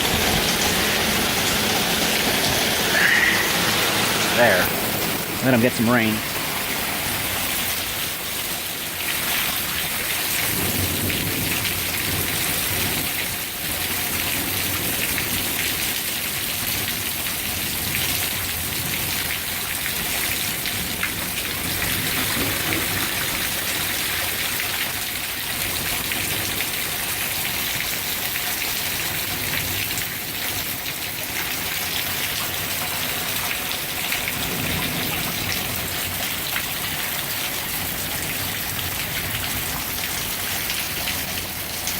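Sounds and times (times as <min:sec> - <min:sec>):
heavy rain pouring: 0:00.0 - 0:41.9
thunder rumbling: 0:10.4 - 0:13.2, 0:20.8 - 0:24.0, 0:34.3 - 0:37.1.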